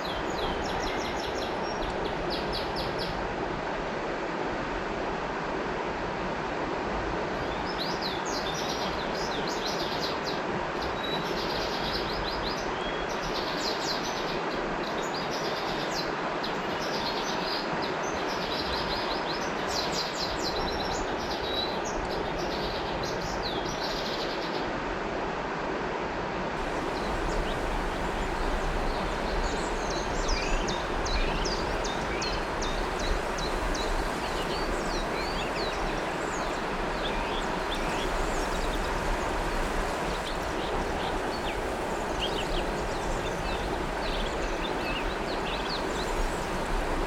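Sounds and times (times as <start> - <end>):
river water flowing: 0.0 - 47.0
small birds chirping: 26.6 - 46.9.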